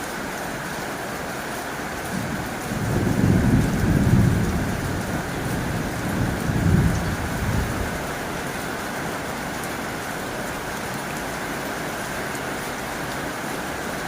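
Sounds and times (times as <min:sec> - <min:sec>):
heavy rain drumming on a tin roof: 0:00.0 - 0:14.0
low rumble of thunder: 0:02.1 - 0:08.4.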